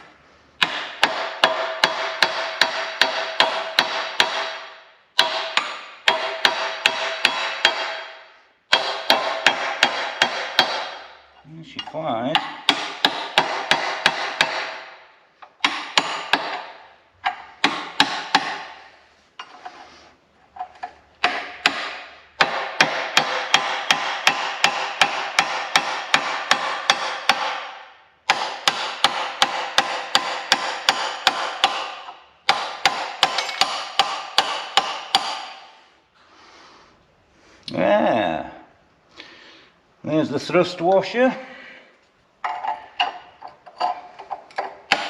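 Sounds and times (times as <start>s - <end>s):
ringing metal: 33.4s - 33.7s.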